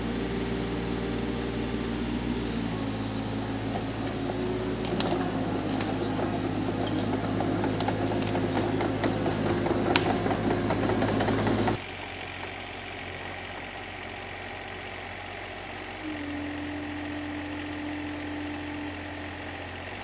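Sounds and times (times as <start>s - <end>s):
car engine running: 0.0s - 20.0s
rattles and clicks: 3.0s - 11.8s.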